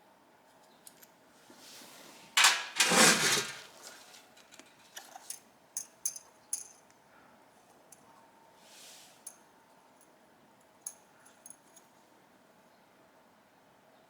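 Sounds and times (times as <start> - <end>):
small metal parts clinking: 4.6 - 6.8, 10.8 - 11.9.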